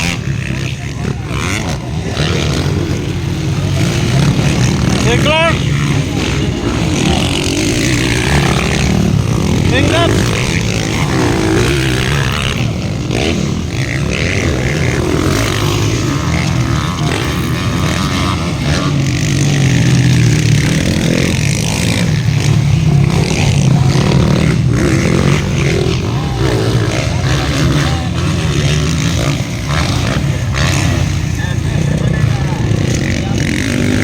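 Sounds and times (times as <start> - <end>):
motocross bike engines revving: 0.0 - 34.0.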